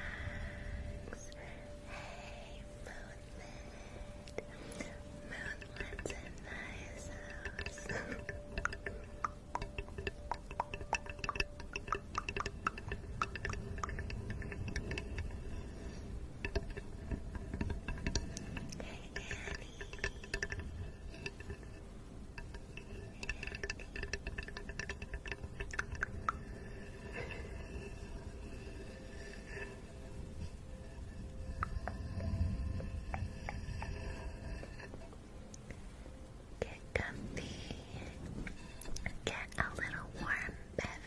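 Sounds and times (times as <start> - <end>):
close-up clicks and taps: 7.2 - 28.6.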